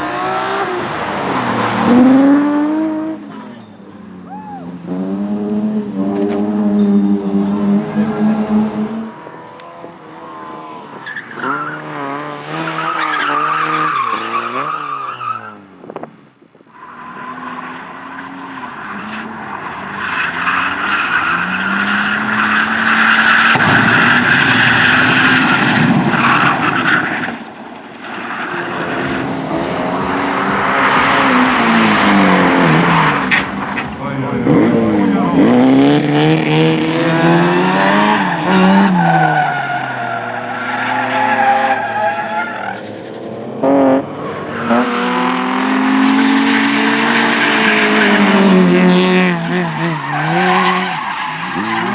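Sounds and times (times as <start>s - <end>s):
race car engines revving: 0.0s - 51.9s
tyres skidding: 0.0s - 51.9s.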